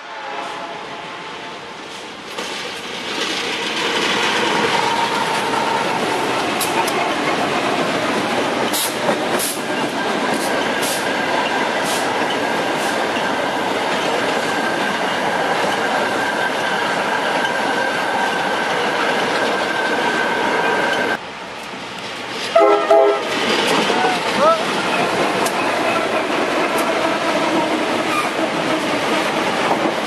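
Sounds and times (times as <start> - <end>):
train wheels rumbling on rail: 0.0 - 30.0
wheels clicking over rail joints: 20.8 - 30.0.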